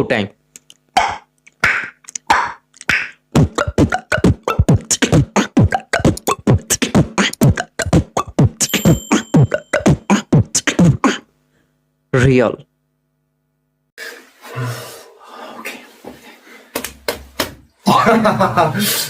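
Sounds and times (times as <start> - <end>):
hollow mouth clicks: 0.5 - 11.2.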